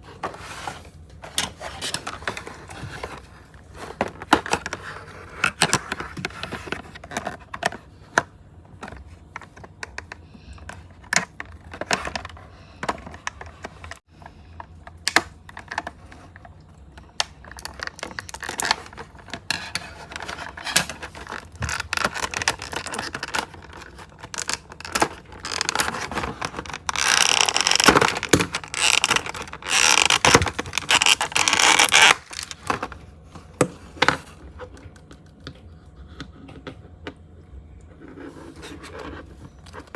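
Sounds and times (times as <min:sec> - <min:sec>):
plastic and cardboard packaging clicks: 0:14.9 - 0:35.6
packaging rustling: 0:17.4 - 0:34.3.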